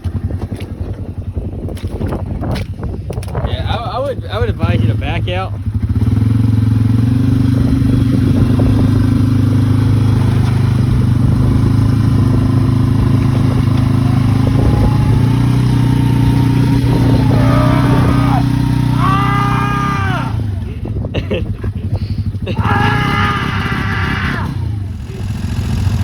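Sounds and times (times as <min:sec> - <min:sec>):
atv engine running: 0:00.0 - 0:26.0
long yell: 0:13.8 - 0:20.7, 0:22.5 - 0:24.8.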